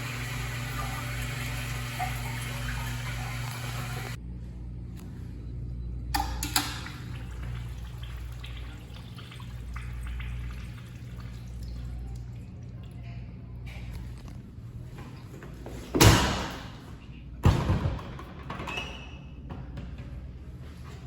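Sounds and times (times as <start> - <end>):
water trickling in a toilet: 0.0 - 4.2, 6.4 - 13.2
steady low hum: 0.0 - 17.6.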